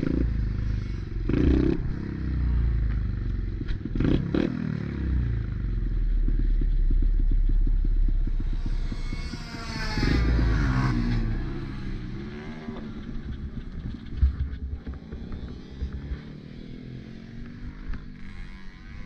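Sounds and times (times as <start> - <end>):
pit bike engine racing: 6.1 - 19.0
motorbike revving past: 8.4 - 14.0.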